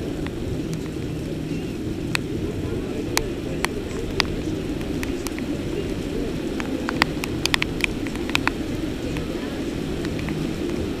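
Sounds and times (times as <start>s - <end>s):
heavy rain falling: 0.0s - 11.0s
raindrops tapping near microphone: 0.0s - 11.0s.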